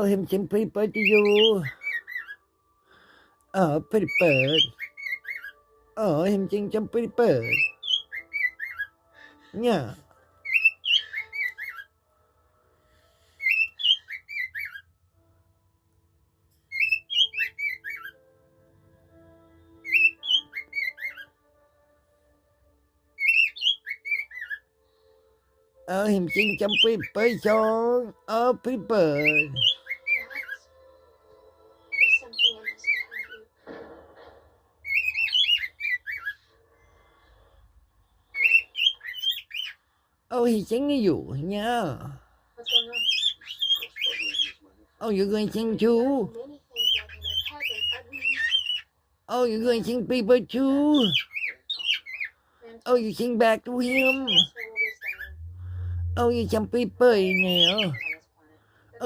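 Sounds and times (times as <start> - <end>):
pet bird whistling a tune: 1.0 - 2.4, 4.0 - 5.6, 7.4 - 9.0, 10.4 - 11.9, 13.4 - 14.9, 16.7 - 18.2, 19.8 - 21.3, 23.2 - 24.6, 29.2 - 30.7, 31.9 - 33.4, 34.8 - 36.4, 38.3 - 39.8, 42.6 - 44.6, 46.7 - 48.9, 53.8 - 58.2.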